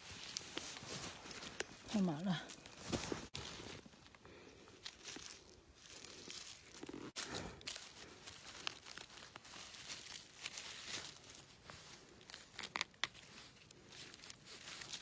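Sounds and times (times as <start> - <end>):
hands rustling through undergrowth: 0.0 - 15.0
small clicks and crackles: 4.8 - 15.0.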